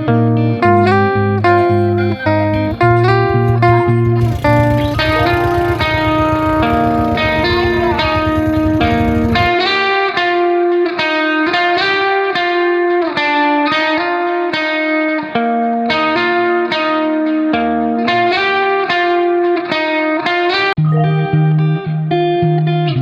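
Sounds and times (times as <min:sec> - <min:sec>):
plucked guitar melody: 0:00.0 - 0:23.0
bass notes: 0:00.2 - 0:09.5.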